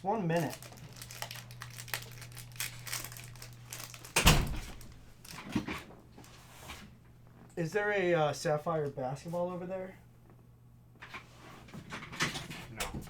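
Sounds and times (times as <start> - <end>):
low electrical hum: 0.0 - 13.0
foil card pack crinkling: 0.2 - 6.4.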